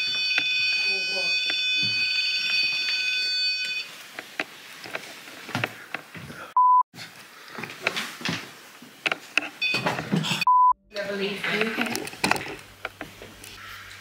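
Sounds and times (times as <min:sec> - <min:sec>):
multi-tone electronic alarm: 0:00.0 - 0:04.0, 0:09.6 - 0:10.8
censor bleep: 0:09.6 - 0:10.8.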